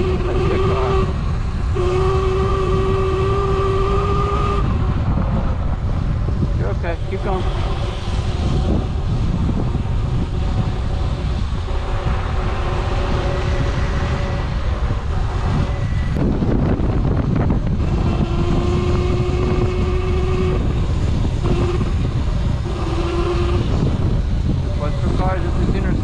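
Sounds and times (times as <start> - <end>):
electric motor whine: 0.0 - 26.0
wind buffeting microphone: 0.0 - 26.0.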